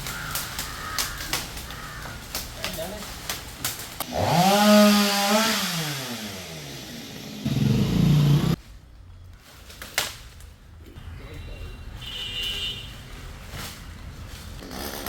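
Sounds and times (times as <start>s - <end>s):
chainsaw revving: 4.0s - 8.6s, 14.6s - 15.0s.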